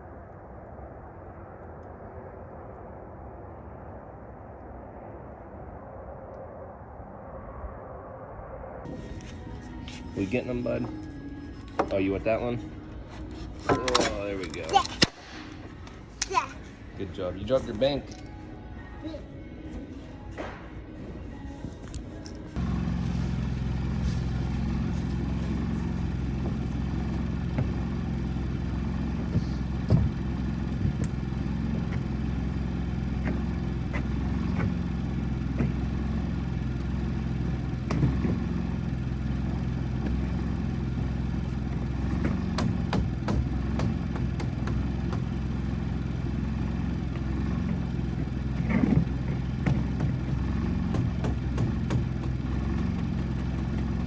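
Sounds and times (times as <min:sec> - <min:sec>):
engine running steadily: 0:21.4 - 0:54.0
knocks and clatter: 0:22.6 - 0:54.0.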